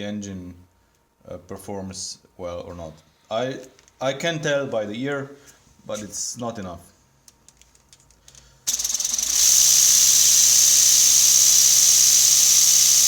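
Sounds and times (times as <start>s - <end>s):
pneumatic engine hissing air: 8.7s - 13.0s.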